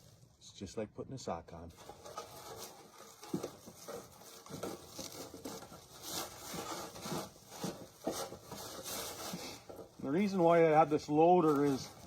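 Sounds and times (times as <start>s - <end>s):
bag rustling and rubbing: 1.7s - 12.0s.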